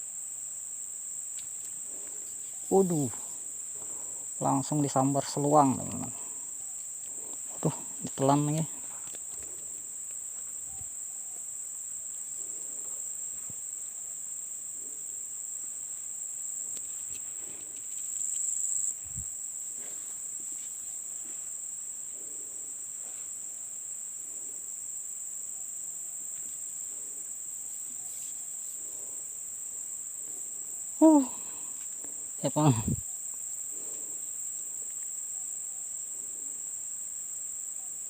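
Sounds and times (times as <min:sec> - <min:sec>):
high-pitched insect drone: 0:00.0 - 0:38.0.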